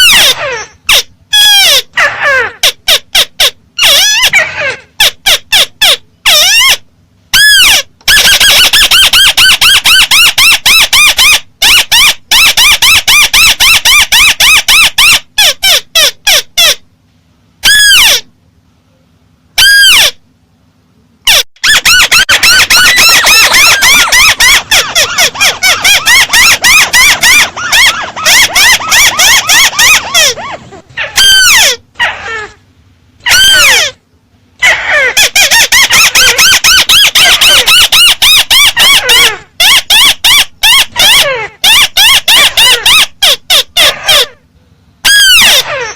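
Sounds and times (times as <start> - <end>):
bird calling ringing notes: 21.3 - 30.6.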